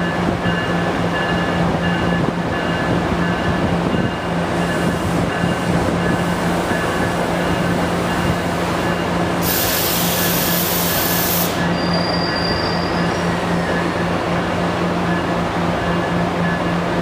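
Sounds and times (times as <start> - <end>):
train hum and rumble: 0.0 - 17.0
loud high hissing: 9.4 - 12.0
faint high squeal: 10.2 - 13.9.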